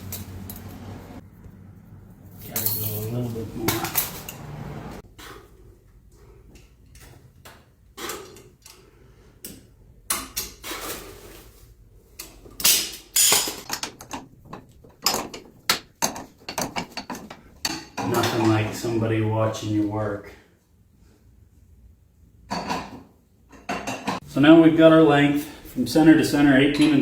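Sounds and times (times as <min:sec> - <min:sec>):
metal clicks and knocks: 0:12.2 - 0:18.3.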